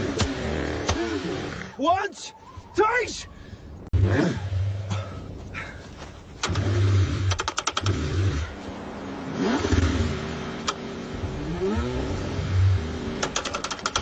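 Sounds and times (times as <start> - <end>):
starter clicks: 6.4 - 8.0, 13.2 - 14.0
car engine cranking: 6.4 - 8.6, 9.4 - 14.0.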